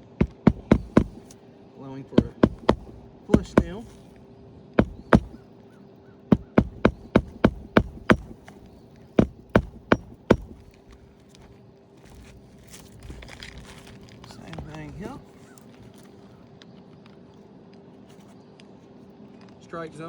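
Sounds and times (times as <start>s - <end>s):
hammer driving nails into shingle: 0.0s - 1.4s, 2.2s - 4.1s, 4.8s - 5.4s, 6.3s - 10.9s.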